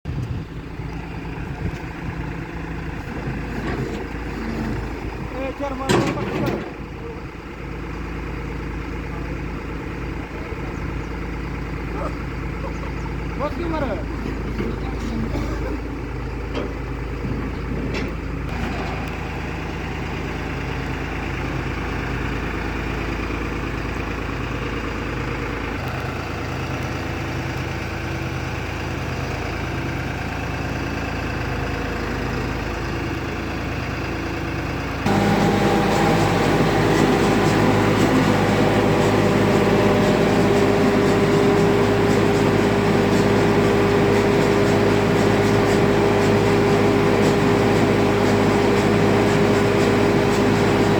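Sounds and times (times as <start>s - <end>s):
tractor engine running: 0.0s - 50.9s
harvester machinery hum: 0.1s - 50.9s.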